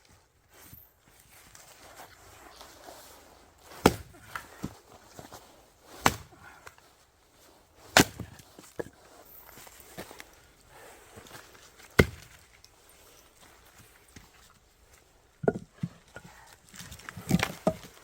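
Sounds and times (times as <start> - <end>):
axe splitting firewood: 2.2 - 14.3, 15.4 - 18.0.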